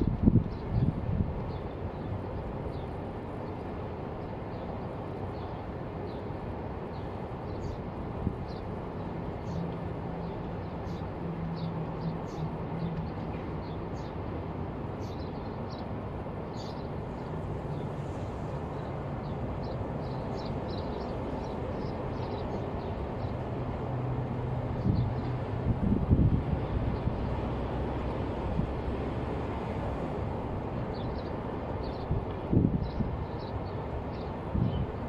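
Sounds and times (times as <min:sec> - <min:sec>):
small birds chirping: 0:16.5 - 0:23.4, 0:30.9 - 0:35.0.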